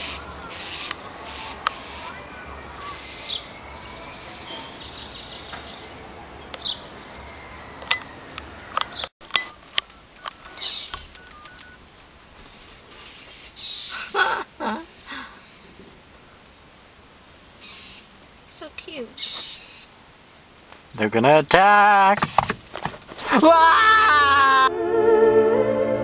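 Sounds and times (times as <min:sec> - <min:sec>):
blue jays scolding calls: 0:00.0 - 0:11.8, 0:12.5 - 0:15.2, 0:17.6 - 0:20.0.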